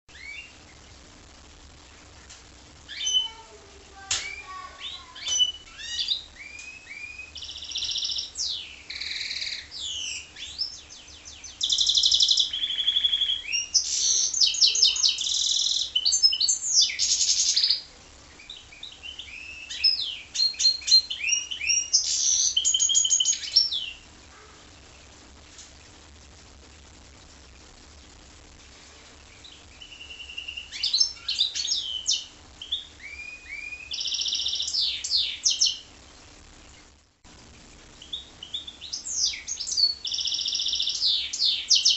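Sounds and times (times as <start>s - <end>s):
finch singing trills: 0.1s - 0.8s, 2.9s - 3.4s, 4.0s - 24.1s, 29.3s - 35.9s, 38.0s - 41.9s.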